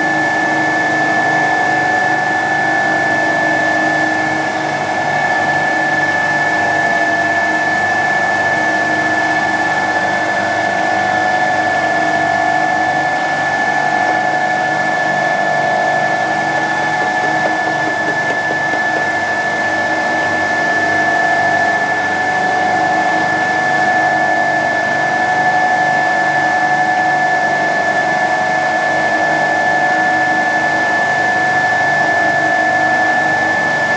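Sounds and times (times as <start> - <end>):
compressor hum: 12.3 - 20.8.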